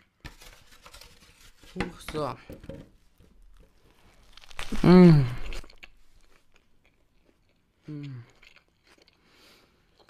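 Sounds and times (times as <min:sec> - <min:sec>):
person chewing food: 0:03.3 - 0:10.0.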